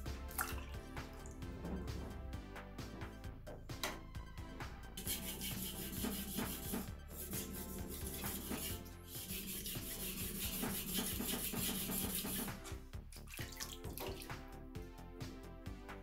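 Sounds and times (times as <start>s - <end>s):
background music: 0.0s - 16.0s
water splashing: 0.3s - 1.4s, 13.2s - 14.4s
knife stroked on whetstone: 5.0s - 12.8s.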